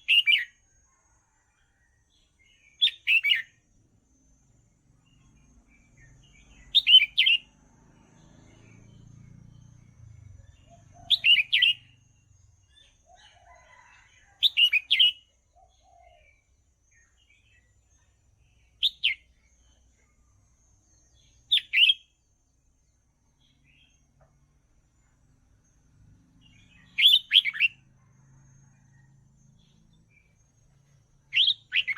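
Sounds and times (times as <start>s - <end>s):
bird singing short phrases: 6.0s - 7.5s, 31.3s - 31.9s.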